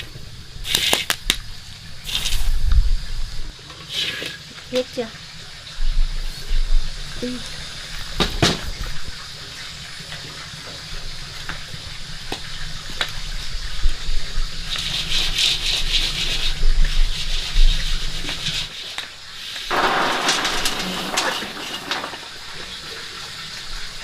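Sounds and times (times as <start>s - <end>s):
water rushing: 19.2s - 24.0s.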